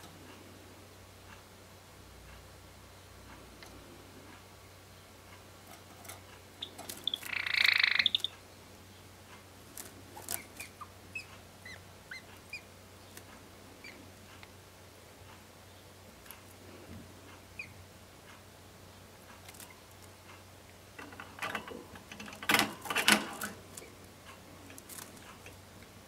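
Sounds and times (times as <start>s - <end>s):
soft bird chirps: 6.6s - 9.0s, 10.2s - 14.0s, 17.6s - 17.8s.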